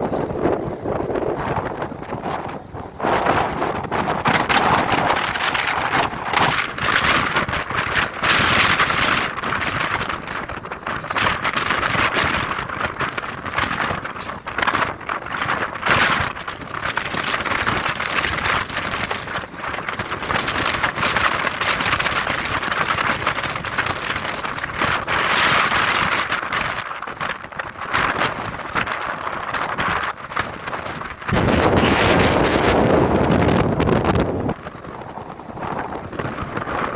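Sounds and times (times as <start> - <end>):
wind buffeting microphone: 0.0 - 36.9.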